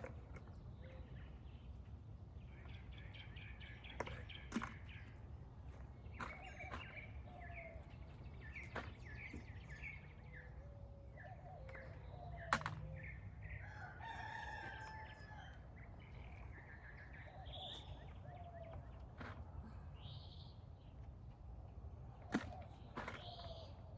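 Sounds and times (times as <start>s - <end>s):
birds chirping: 0.0s - 23.9s
rooster crowing: 13.6s - 15.6s.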